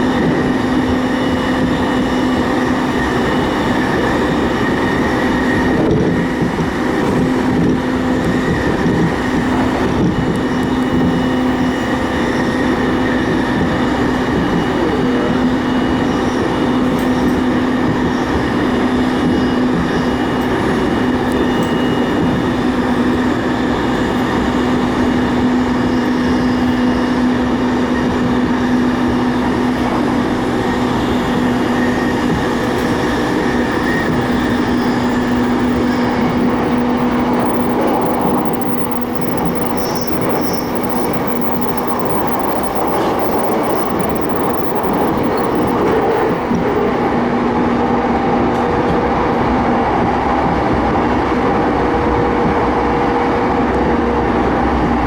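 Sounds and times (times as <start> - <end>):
train wheels rumbling on track: 0.0 - 55.0
humming tone: 19.4 - 47.3.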